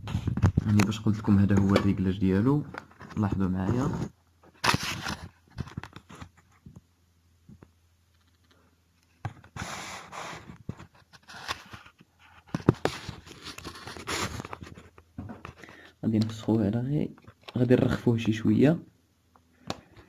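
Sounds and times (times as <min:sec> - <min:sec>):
scraping and rustling: 0:09.3 - 0:15.8.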